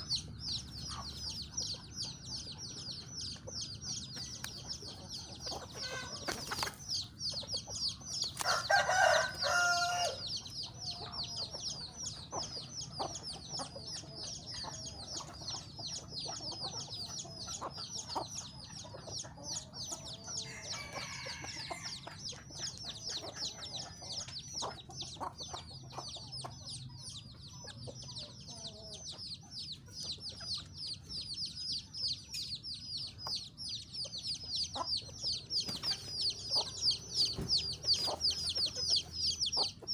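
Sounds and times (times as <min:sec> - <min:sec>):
chickens clucking: 0:00.0 - 0:39.9
rooster crowing: 0:08.4 - 0:10.3, 0:20.4 - 0:22.0
rapid high chirping: 0:29.6 - 0:39.9.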